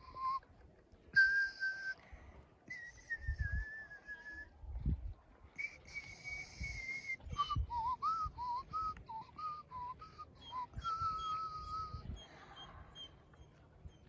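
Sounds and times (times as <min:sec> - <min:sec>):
person whistling: 0:01.2 - 0:02.0, 0:02.7 - 0:04.5, 0:05.6 - 0:12.1.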